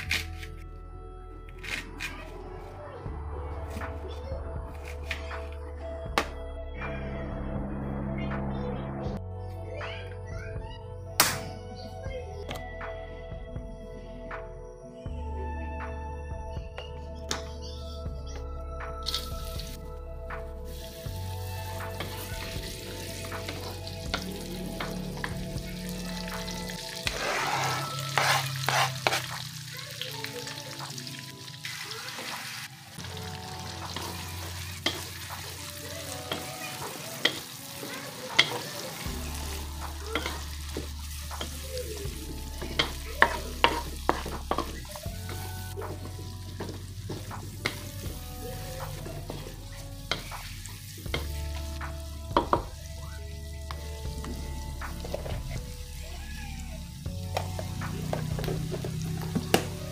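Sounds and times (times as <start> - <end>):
food sizzling in hot oil: 20.7 - 59.9
wooden spatula scraping pan: 27.0 - 29.4.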